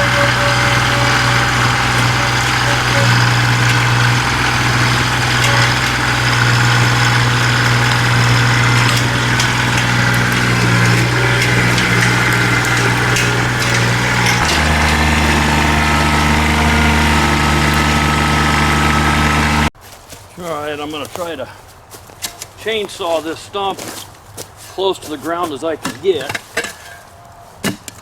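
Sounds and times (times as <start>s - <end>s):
diesel tractor engine running: 0.0s - 19.8s.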